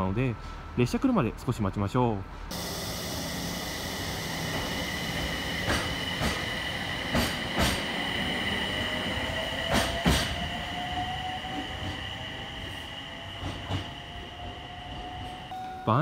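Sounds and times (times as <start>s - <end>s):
steady high whine: 2.5s - 15.6s
train wheels clicking over rail joints: 3.6s - 15.5s.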